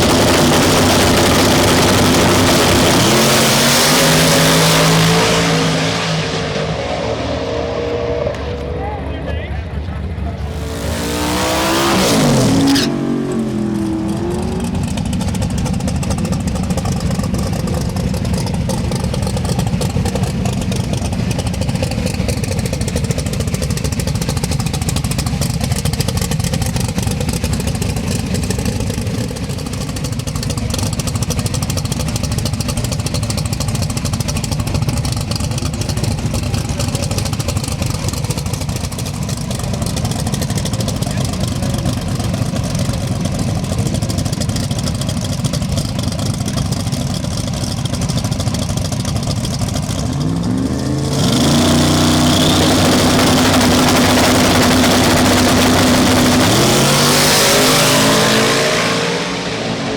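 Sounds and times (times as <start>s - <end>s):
race car engine dropping in pitch: 0.0s - 25.5s
low engine rumble idling: 6.3s - 51.2s.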